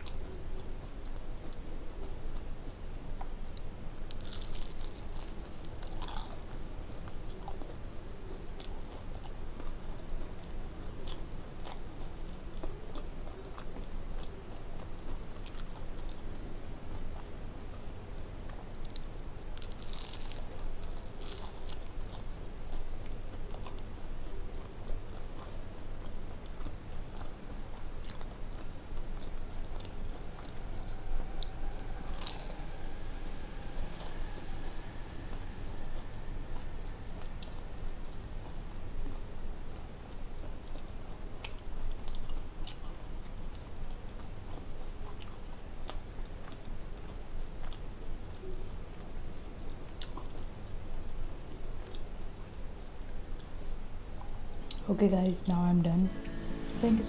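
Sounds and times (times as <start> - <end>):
steady low hum: 0.0 - 57.0
crunchy bites and wet chewing: 3.4 - 17.9, 18.5 - 33.1.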